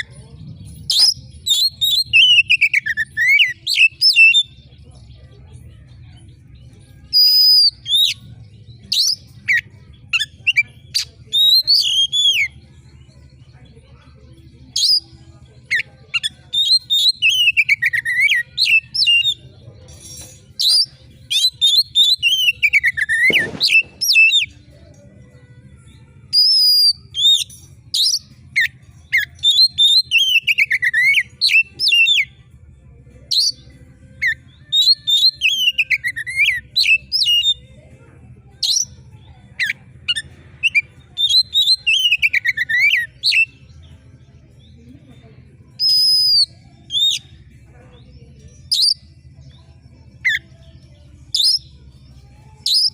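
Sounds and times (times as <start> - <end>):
songbird singing shrill phrases: 0.9 - 4.5, 7.1 - 12.6, 14.7 - 15.1, 15.7 - 19.4, 20.1 - 24.6, 26.3 - 32.3, 33.3 - 37.6, 38.6 - 39.0, 39.6 - 43.8, 45.7 - 47.5, 48.5 - 52.9.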